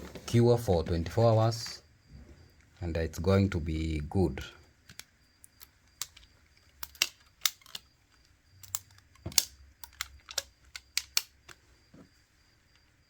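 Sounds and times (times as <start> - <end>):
rubber bands snapping: 4.8 - 11.6.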